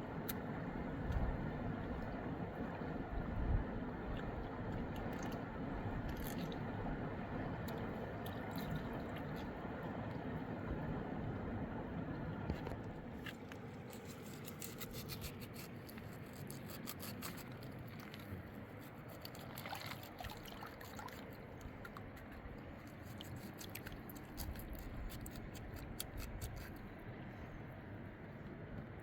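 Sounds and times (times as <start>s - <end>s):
small sharp clicks and scrapes: 12.5s - 20.2s, 20.8s - 26.9s.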